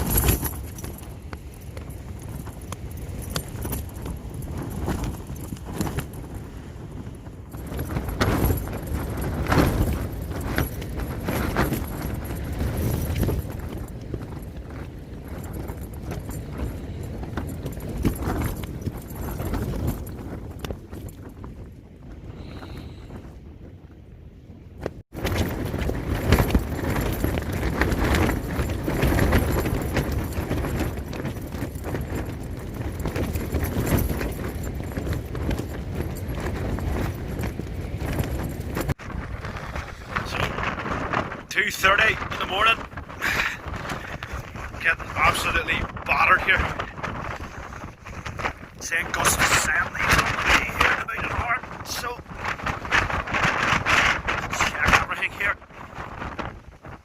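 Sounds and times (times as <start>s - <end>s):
tent fabric flapping: 0.0s - 23.2s, 24.8s - 57.0s
strong wind gusting: 0.0s - 57.0s.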